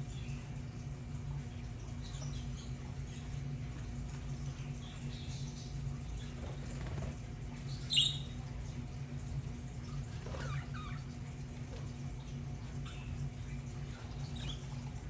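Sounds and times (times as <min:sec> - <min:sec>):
steady low hum: 0:00.0 - 0:15.0
budgerigars chirping: 0:07.9 - 0:08.4.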